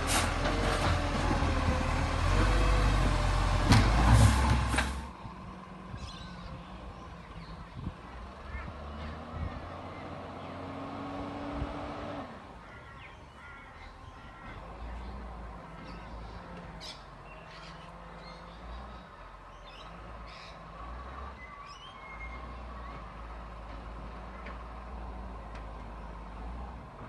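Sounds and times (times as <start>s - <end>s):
birds calling: 5.2s - 26.7s.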